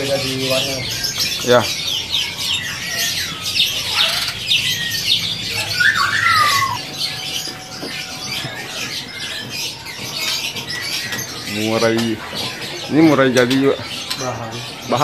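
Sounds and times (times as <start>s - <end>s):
songbirds chirping: 0.0s - 15.0s
bird call gliding down: 4.9s - 6.9s.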